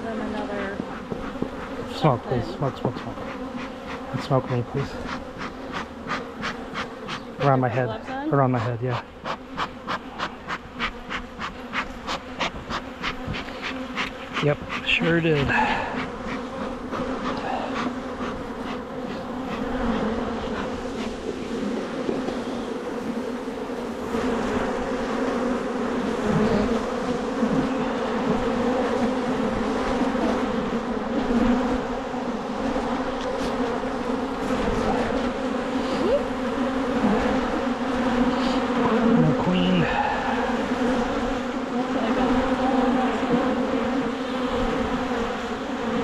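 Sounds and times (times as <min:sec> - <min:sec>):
honeybees buzzing: 0:00.0 - 0:46.0.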